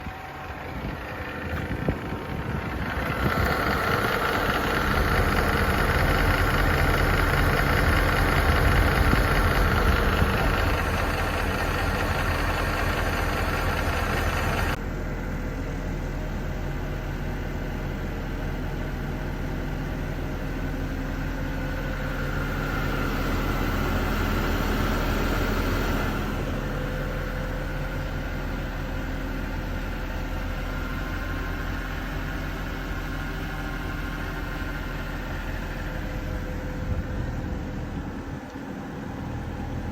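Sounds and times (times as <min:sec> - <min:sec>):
engine ticking: 0:00.0 - 0:14.8
car engine idling: 0:00.0 - 0:14.9, 0:16.0 - 0:39.9.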